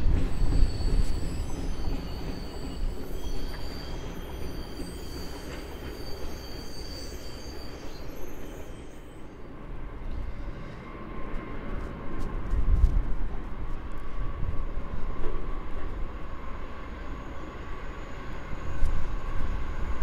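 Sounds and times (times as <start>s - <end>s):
high-pitched wheel squeal: 0.0s - 9.5s
freight train rumbling past: 0.0s - 20.0s.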